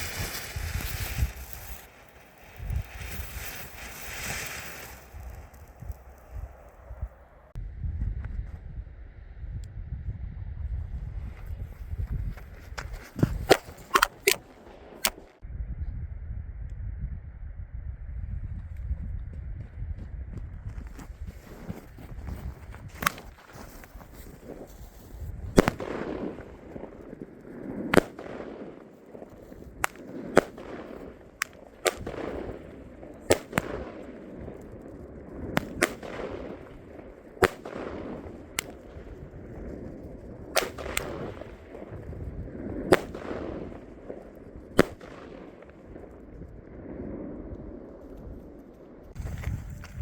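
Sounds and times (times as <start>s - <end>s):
fireworks bangs with echo: 0.0s - 6.6s, 24.2s - 48.4s.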